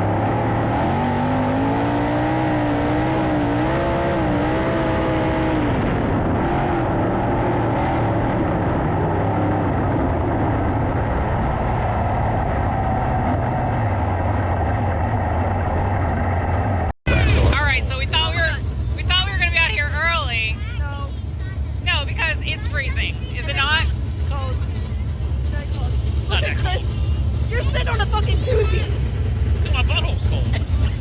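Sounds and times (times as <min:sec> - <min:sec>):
engine throttled through turns: 0:00.0 - 0:31.0
racing car engines: 0:00.0 - 0:31.0.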